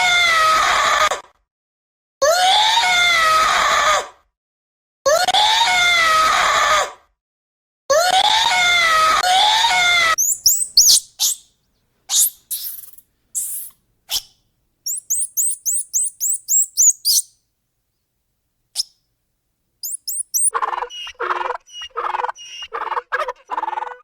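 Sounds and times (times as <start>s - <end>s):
quick high chirps: 10.2s - 11.4s, 12.1s - 17.3s, 19.8s - 20.5s
wailing animal calls: 10.2s - 11.4s, 19.8s - 24.0s.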